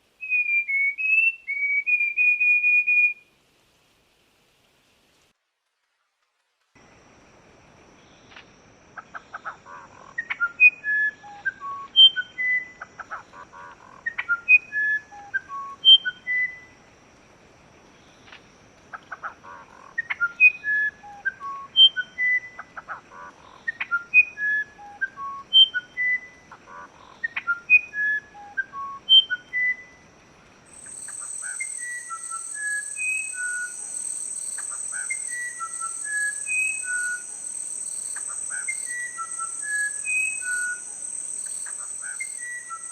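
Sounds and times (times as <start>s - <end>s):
songbird whistled song: 0.1s - 3.3s, 10.2s - 13.1s, 14.0s - 16.8s, 20.0s - 22.9s, 23.6s - 30.0s, 30.7s - 42.9s
steady high insect drone: 6.8s - 42.9s.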